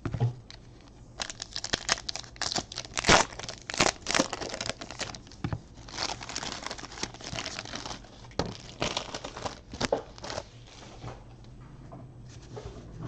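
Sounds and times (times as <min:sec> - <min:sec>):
plastic wrappers crinkling and tearing: 0:00.5 - 0:10.9.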